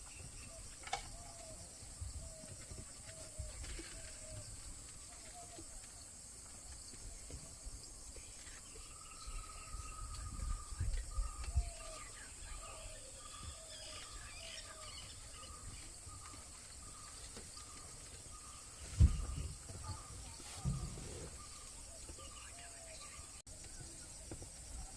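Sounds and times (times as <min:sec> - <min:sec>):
birds calling: 0:00.0 - 0:24.9
insects hissing: 0:00.0 - 0:24.9
low bumps: 0:15.6 - 0:22.2.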